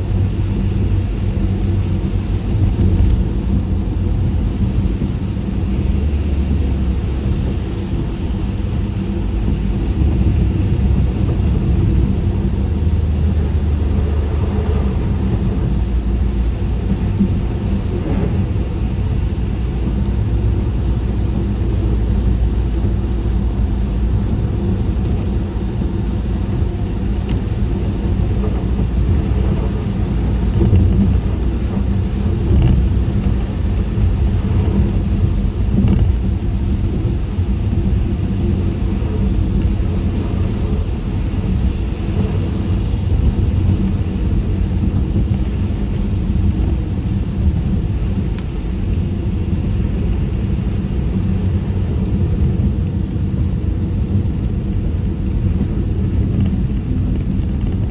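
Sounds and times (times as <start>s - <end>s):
tyres and engine rumble inside car: 0.0s - 57.9s.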